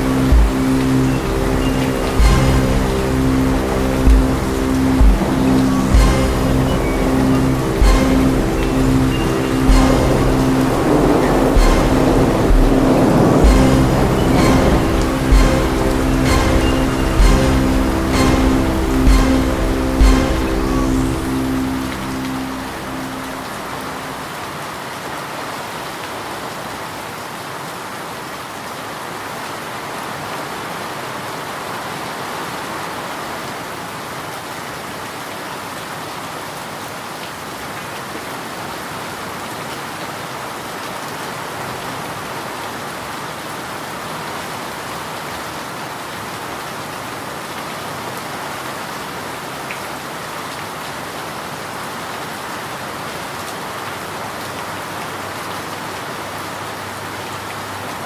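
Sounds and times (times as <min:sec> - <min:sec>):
rain pattering on a surface: 0:00.0 - 0:58.0.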